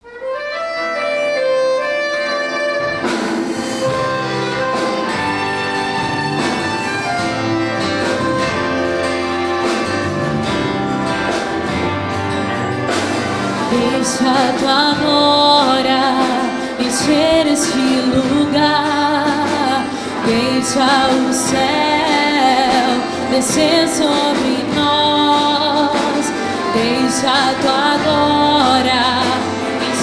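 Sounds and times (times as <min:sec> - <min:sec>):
church band playing worship song: 0:00.2 - 0:30.0
drums: 0:00.2 - 0:30.0
person singing: 0:12.9 - 0:30.0.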